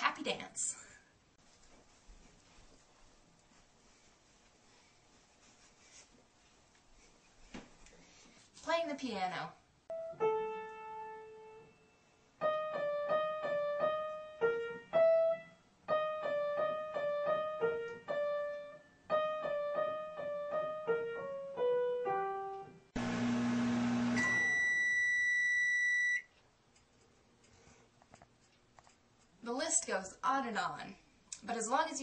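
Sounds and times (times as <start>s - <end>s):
microwave oven humming: 23.0s - 26.2s
microwave oven beep: 23.0s - 26.3s.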